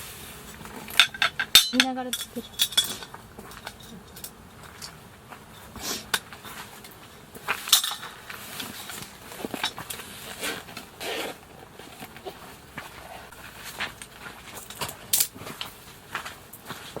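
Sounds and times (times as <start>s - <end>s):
cookware and utensils clinking: 0.9s - 4.3s.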